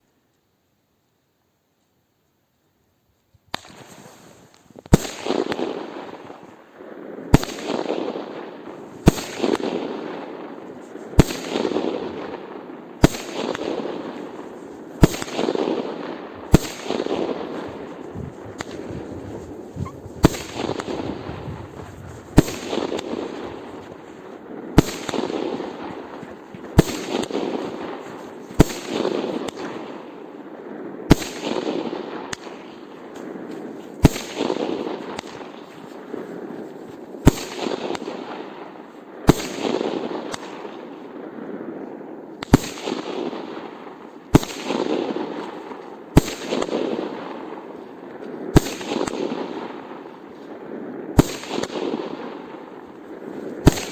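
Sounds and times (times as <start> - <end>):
fireworks bangs: 13.0 - 29.9
rumbling firework wash: 16.2 - 28.8.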